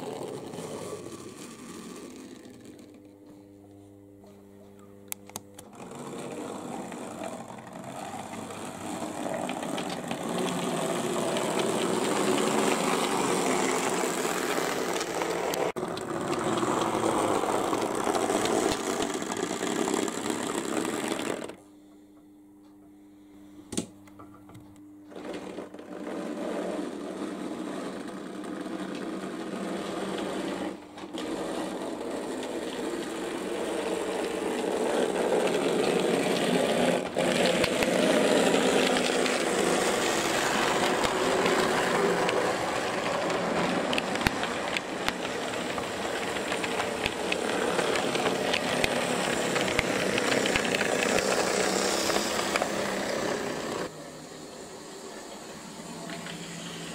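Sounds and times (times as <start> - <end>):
small electric motor whirring: 0.0 - 3.1, 5.6 - 21.6, 25.8 - 56.9
wheels rattling over rails: 0.0 - 3.1, 5.7 - 21.6, 25.1 - 56.9
faint steady hum: 0.0 - 26.2.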